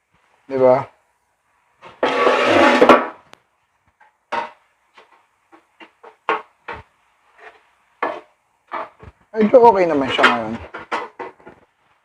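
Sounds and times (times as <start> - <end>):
scraping noise: 1.8 - 3.0.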